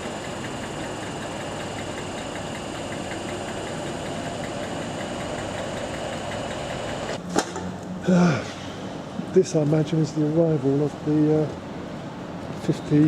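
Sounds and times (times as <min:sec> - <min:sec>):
diesel engine idling: 0:00.0 - 0:07.2.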